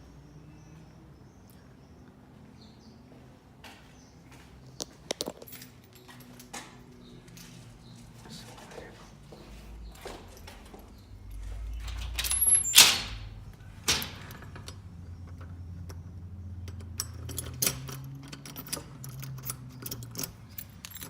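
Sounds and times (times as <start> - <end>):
light clicks and jangling: 4.8 - 7.5, 9.8 - 21.0
door sliding shut: 11.4 - 14.9.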